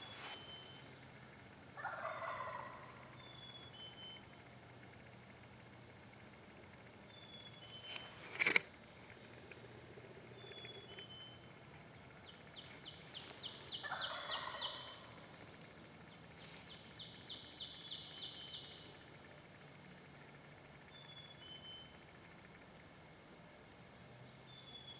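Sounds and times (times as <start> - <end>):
thin bird whistles: 0.0 - 0.8
songbirds calling: 0.0 - 24.9
turkey gobbling: 1.8 - 3.2, 13.6 - 15.4
sharp click: 7.9 - 8.7.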